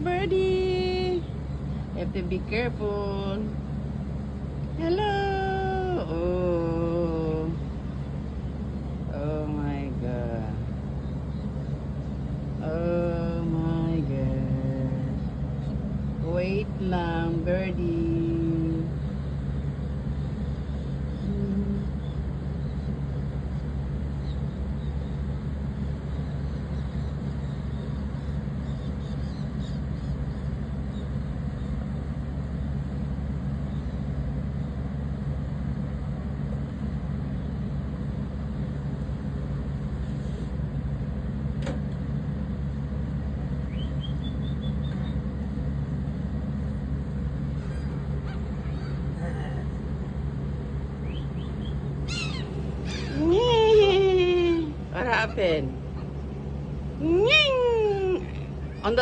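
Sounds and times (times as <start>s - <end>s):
low mechanical rumble and hum: 0.0s - 59.0s
faint high bird chirps: 43.7s - 45.2s, 47.6s - 49.6s, 51.0s - 53.9s.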